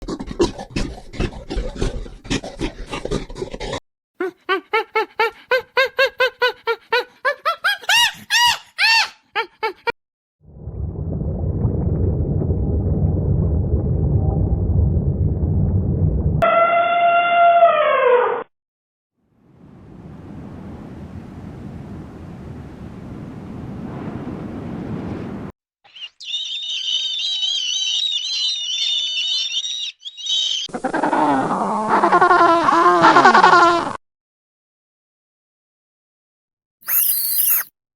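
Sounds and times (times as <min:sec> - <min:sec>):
chorus of high chirps: 0:25.9 - 0:30.7, 0:36.8 - 0:37.7
whining animal calls: 0:36.8 - 0:37.7.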